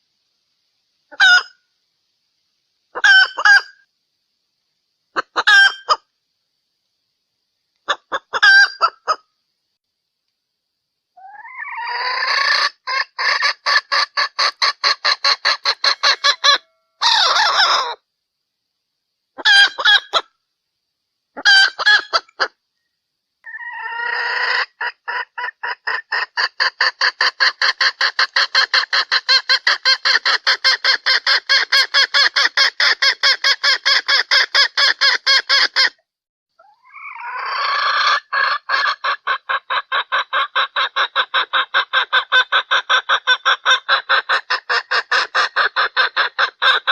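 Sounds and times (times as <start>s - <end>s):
hen clucking: 1.1s - 1.6s, 2.9s - 3.8s, 5.2s - 6.1s, 7.8s - 9.2s, 11.2s - 18.0s, 19.4s - 20.3s, 21.4s - 22.6s, 23.4s - 36.0s, 36.6s - 46.9s.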